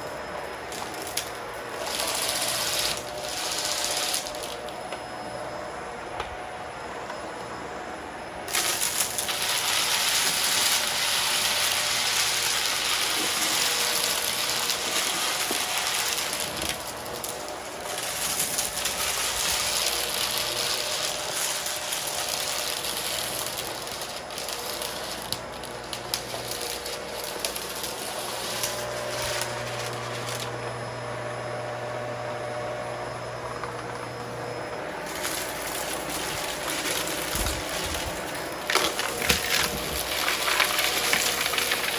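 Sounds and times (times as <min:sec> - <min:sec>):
vacuum cleaner motor: 0:00.0 - 0:41.9
debris crackling and rattling: 0:08.5 - 0:30.5, 0:35.0 - 0:41.9.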